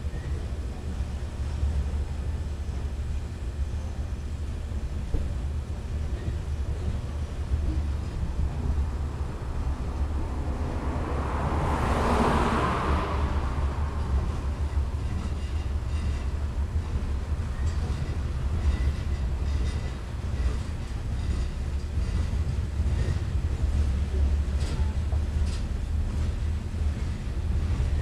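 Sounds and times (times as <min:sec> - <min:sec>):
train wheels rumbling on rails: 0:00.0 - 0:28.0
rush of noise: 0:08.0 - 0:15.5.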